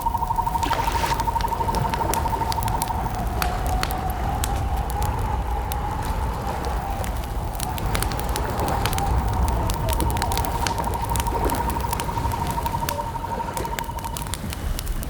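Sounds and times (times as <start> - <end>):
campfire crackling and popping: 0.0 - 15.0
cricket trill: 0.0 - 15.0
low rumble: 0.0 - 15.0.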